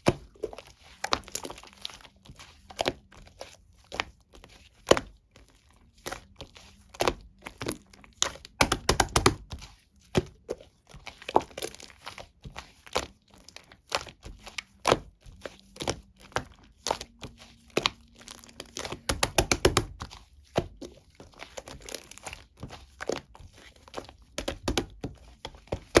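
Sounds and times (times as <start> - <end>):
slime squishing with sticky pops: 0.0 - 26.0.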